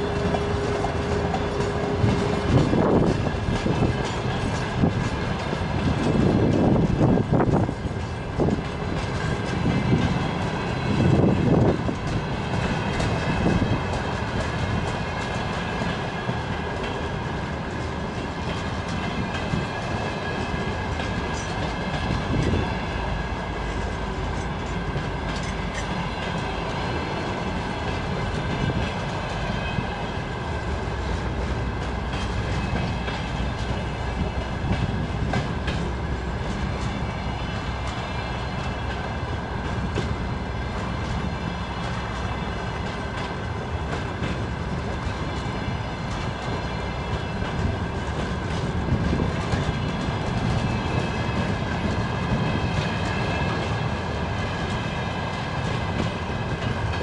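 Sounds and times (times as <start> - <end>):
steel wheels rumbling on rail: 0.0 - 57.0
wheels clacking over rail joints: 0.0 - 57.0.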